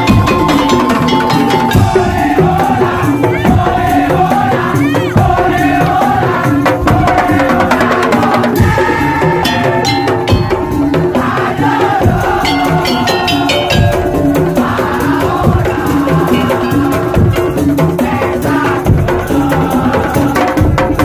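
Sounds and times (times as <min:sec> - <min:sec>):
held melody line: 0:00.0 - 0:03.6, 0:12.0 - 0:17.6
wooden slit drums and drums: 0:00.0 - 0:21.0.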